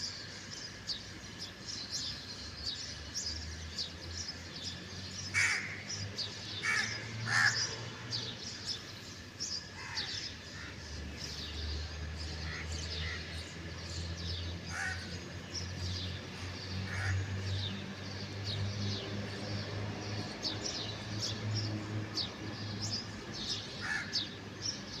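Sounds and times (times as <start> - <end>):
small birds chirping: 0.0 - 25.0
crows cawing: 5.4 - 5.8, 6.6 - 7.7, 9.8 - 10.8, 14.7 - 15.2, 16.9 - 17.3, 23.8 - 24.2.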